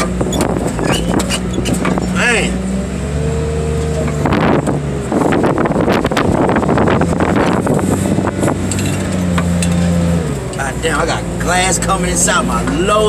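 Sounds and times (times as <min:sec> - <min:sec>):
loader engine under load: 0:00.0 - 0:13.0
metal crunching: 0:03.5 - 0:10.8.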